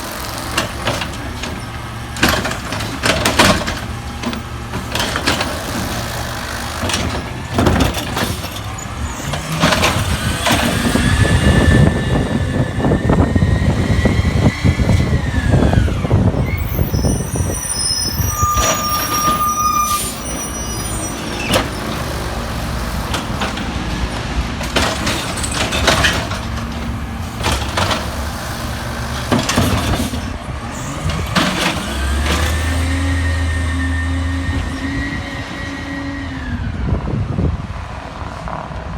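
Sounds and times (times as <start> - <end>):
hydraulics running: 0.0 - 37.0
truck engine revving: 0.0 - 38.6
bins banging and clanking: 0.1 - 13.4, 18.2 - 34.2.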